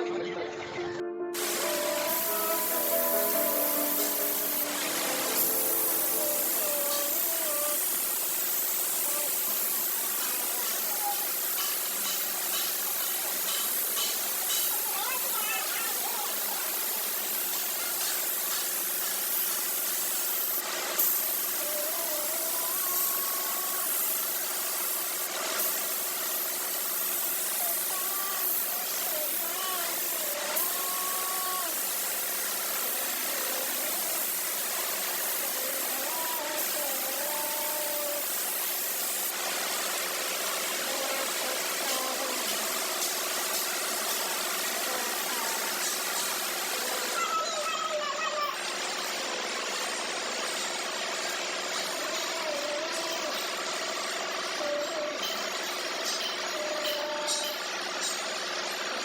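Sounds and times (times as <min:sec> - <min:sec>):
machine noise with hiss: 0:01.3 - 0:59.0.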